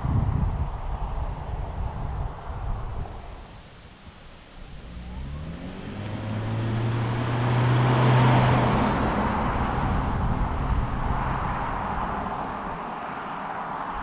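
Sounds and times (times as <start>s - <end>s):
road and wind noise: 0.0s - 14.0s
car engine revving and droning: 4.5s - 13.7s.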